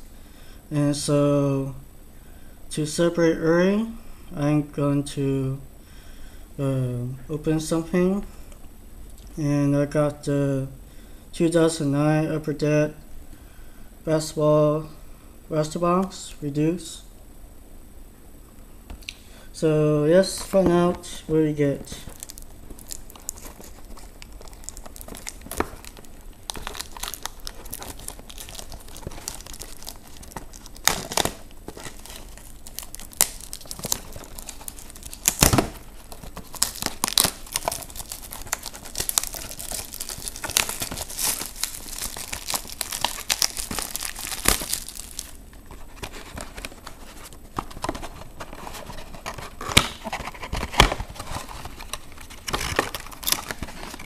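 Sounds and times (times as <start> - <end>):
plastic packaging crinkling: 20.2 - 54.0
plastic packs tearing open: 21.8 - 46.8, 47.6 - 54.0.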